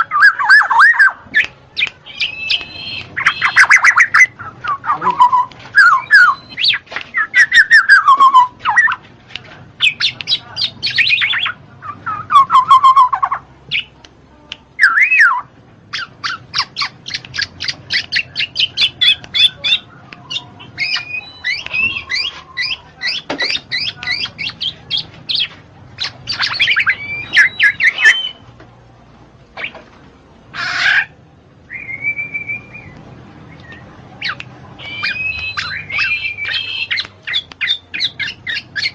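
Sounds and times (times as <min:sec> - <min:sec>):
bird calling with whistles and squawks: 0:02.0 - 0:09.0, 0:14.8 - 0:28.4, 0:33.6 - 0:38.9.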